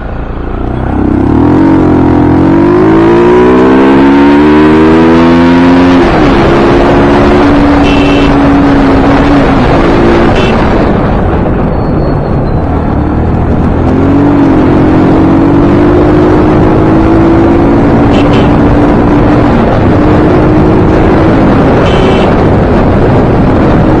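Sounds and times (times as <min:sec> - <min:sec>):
motorcycle engine cruising: 0:00.0 - 0:24.0
wind rush on microphone: 0:00.9 - 0:24.0.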